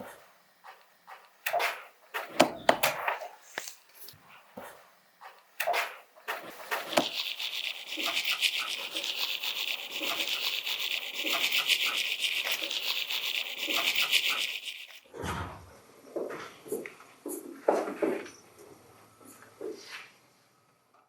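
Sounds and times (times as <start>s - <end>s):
fast scrubbing: 6.4s - 15.0s.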